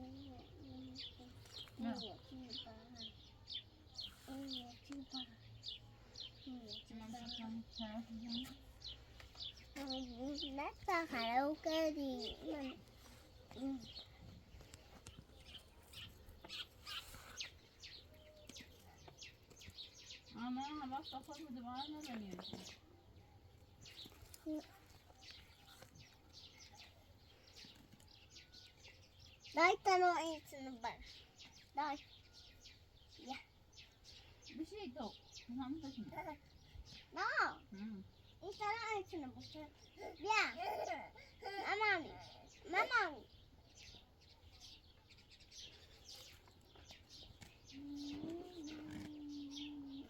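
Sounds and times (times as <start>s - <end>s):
small birds chirping: 0.0s - 50.0s
low held hum or coo: 47.7s - 50.0s.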